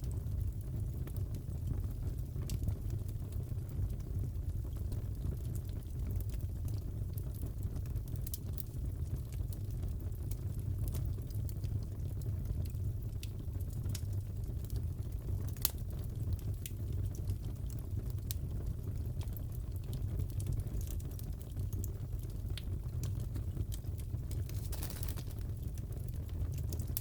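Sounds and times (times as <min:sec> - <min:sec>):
fire pops and snaps: 0:00.0 - 0:27.0
fireplace crackling: 0:11.1 - 0:27.0.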